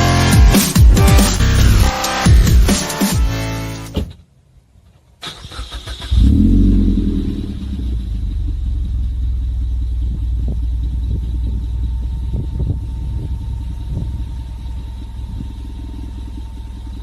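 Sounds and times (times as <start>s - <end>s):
car engine starting and idling: 0.0s - 4.2s, 4.9s - 17.0s
starter motor cranking: 5.2s - 6.7s.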